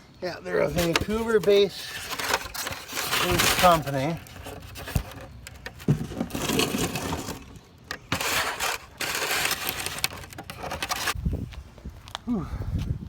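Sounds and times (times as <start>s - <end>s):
packing material crunching and rustling: 0.7s - 11.2s.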